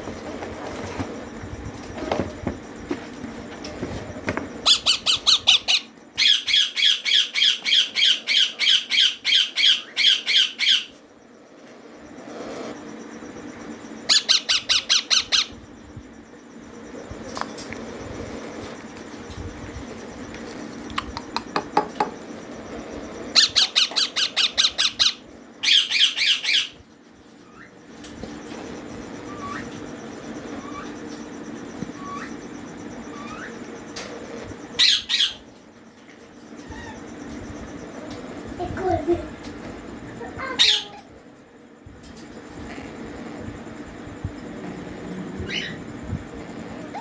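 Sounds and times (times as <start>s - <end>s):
parrot chicks begging squawks: 4.6s - 11.0s, 14.1s - 15.6s, 23.3s - 26.8s, 34.7s - 35.5s, 40.5s - 41.0s, 45.4s - 45.8s.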